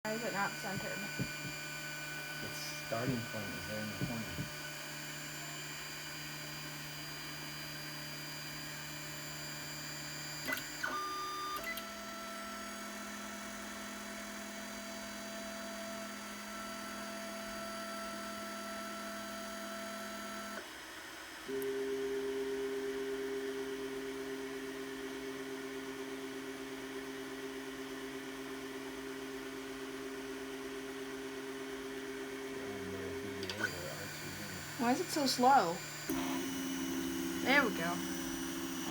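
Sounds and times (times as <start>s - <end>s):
stepper motors whining: 0.1s - 10.9s, 32.7s - 38.9s.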